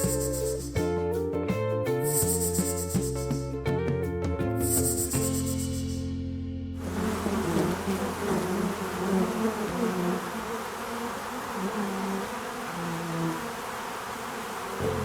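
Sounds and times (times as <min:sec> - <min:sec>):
flying insects buzzing: 0:00.0 - 0:00.8, 0:02.1 - 0:03.1, 0:04.6 - 0:06.0, 0:06.8 - 0:15.0.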